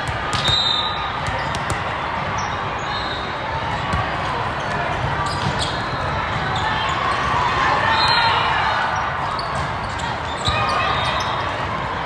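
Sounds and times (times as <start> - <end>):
volleyballs bouncing on court floor: 0.0 - 2.4, 3.6 - 6.6
sports hall crowd din: 0.0 - 12.0.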